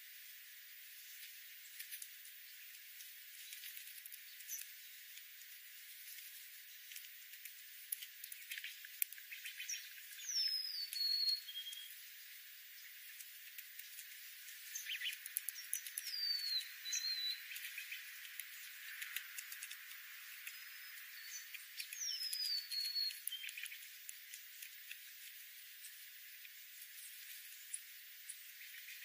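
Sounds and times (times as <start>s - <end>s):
faint clicks and ticks: 1.1s - 11.1s, 12.8s - 29.0s
bird whistling downward: 10.2s - 11.9s.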